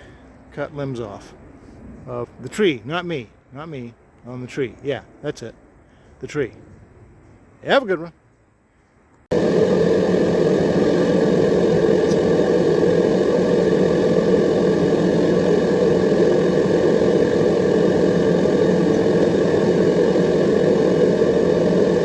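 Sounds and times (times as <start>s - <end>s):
chainsaw engine running: 9.3s - 22.0s.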